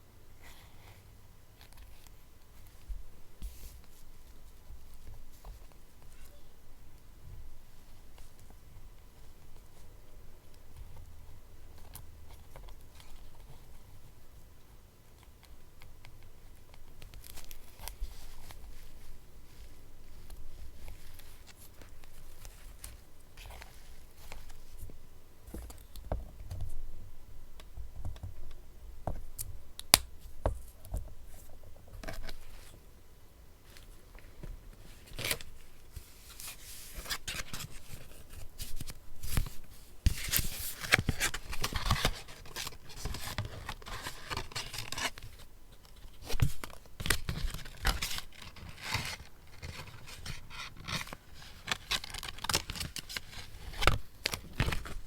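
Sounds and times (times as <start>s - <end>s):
paper rustling and tearing: 46.2s - 55.0s.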